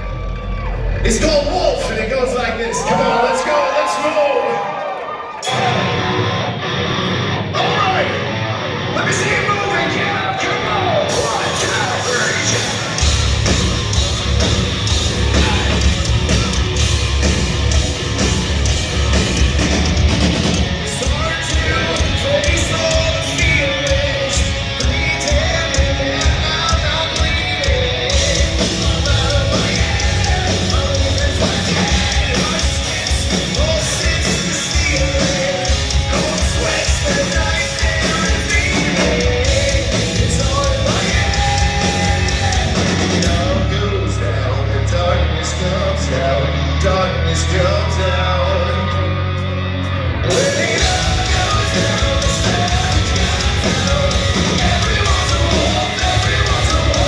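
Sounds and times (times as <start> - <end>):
bass: 0.0 - 57.0
drums: 0.0 - 57.0
distorted guitars: 5.3 - 57.0
person singing: 20.4 - 49.5, 50.2 - 57.0.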